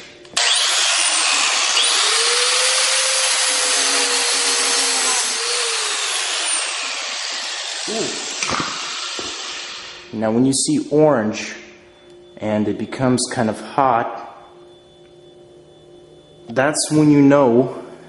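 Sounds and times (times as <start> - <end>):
angle grinder grinding metal: 0.3 - 10.1.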